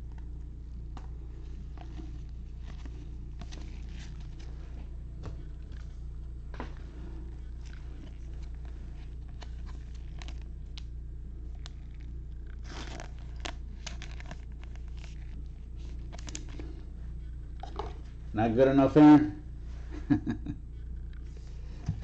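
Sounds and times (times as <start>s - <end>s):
steady low hum: 0.0s - 22.0s
foil wrappers crinkling and tearing: 7.6s - 10.9s, 11.5s - 16.8s.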